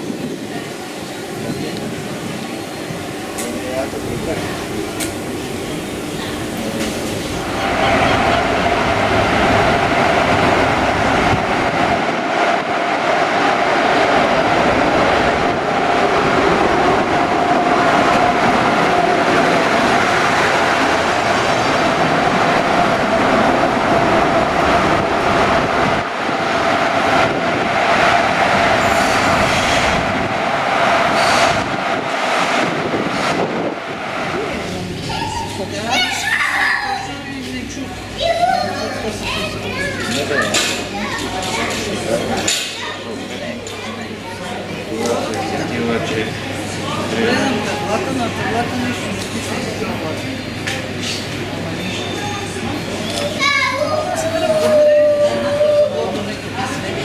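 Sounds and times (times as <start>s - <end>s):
locomotive engine drone: 0.0s - 35.9s
train rolling past: 0.0s - 57.0s.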